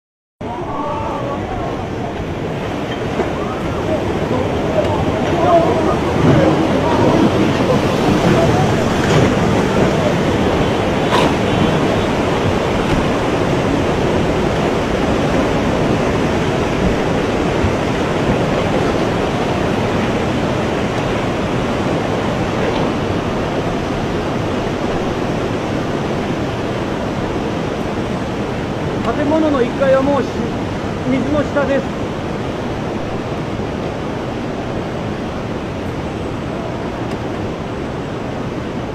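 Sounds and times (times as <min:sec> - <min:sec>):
floodwater rushing: 0:00.4 - 0:38.9.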